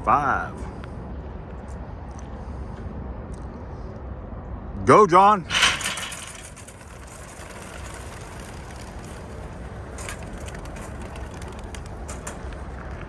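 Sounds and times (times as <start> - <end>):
pigeon wings fluttering: 5.8 - 13.0.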